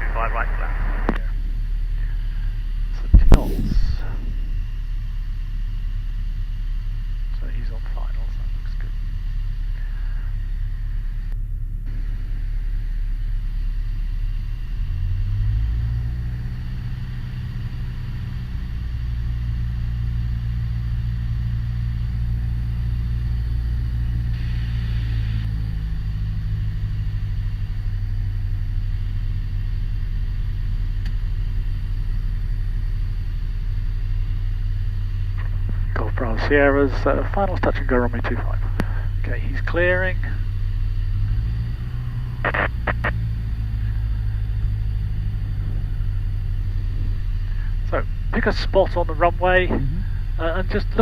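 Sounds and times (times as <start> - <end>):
aircraft engine and propeller droning: 23.5 - 51.0.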